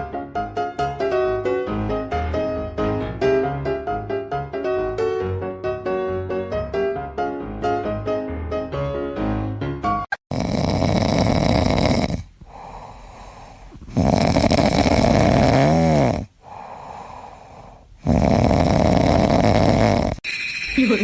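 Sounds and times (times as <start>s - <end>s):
piano music: 0.0s - 10.2s
loud snoring: 10.2s - 20.2s
quiet breathing: 12.1s - 14.0s, 16.1s - 18.0s.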